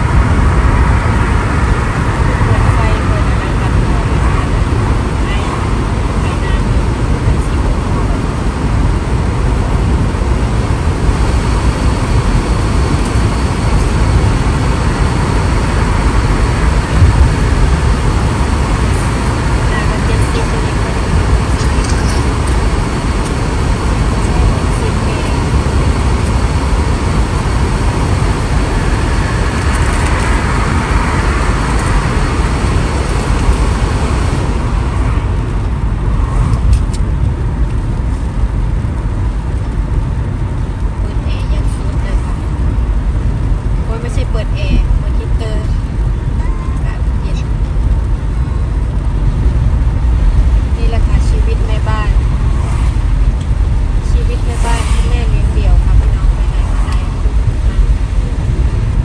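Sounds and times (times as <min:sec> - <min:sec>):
road and engine noise in car: 0:00.0 - 0:59.0.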